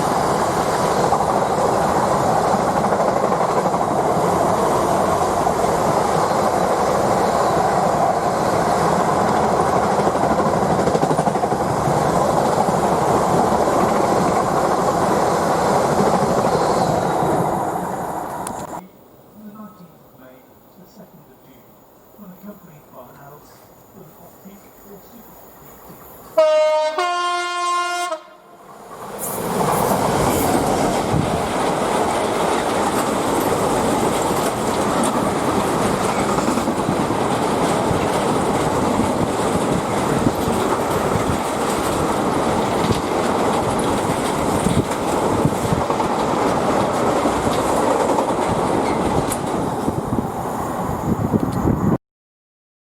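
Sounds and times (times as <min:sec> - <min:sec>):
train wheel and rail noise: 0:00.0 - 0:18.8, 0:21.0 - 0:52.0
train horn: 0:26.4 - 0:28.6.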